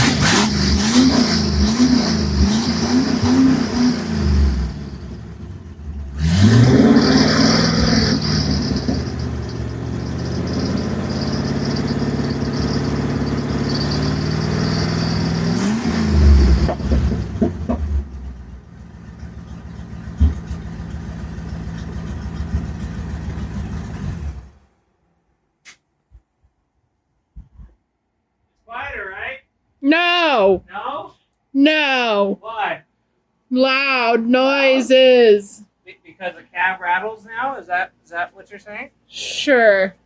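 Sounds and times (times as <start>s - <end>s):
pickup truck engine revving: 0.0s - 24.6s.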